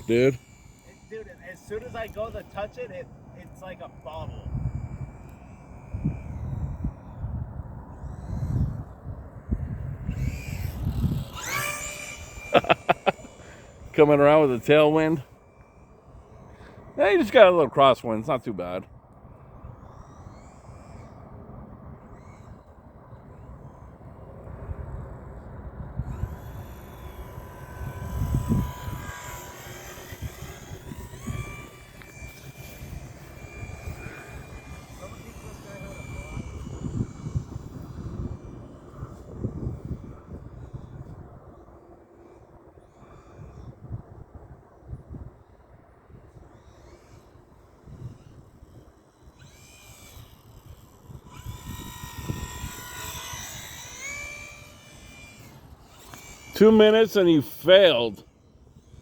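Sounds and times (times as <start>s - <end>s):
wind rumbling on microphone: 0.0s - 14.1s, 18.9s - 56.5s
model airplane motor whining: 0.0s - 59.0s.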